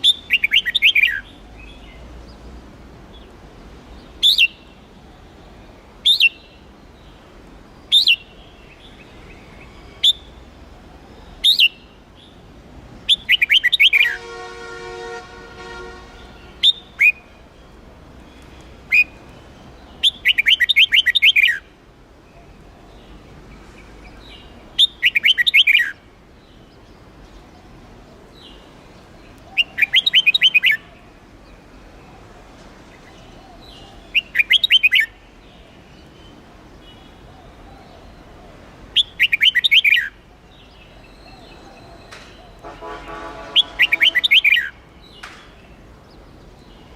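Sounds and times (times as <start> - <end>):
bulbul chattering song: 0.0 - 1.9, 13.1 - 14.6, 15.4 - 17.4, 18.4 - 21.7, 24.8 - 26.0, 29.4 - 30.9, 34.1 - 35.2, 39.0 - 40.2, 41.5 - 44.9
short bird calls: 41.1 - 44.7.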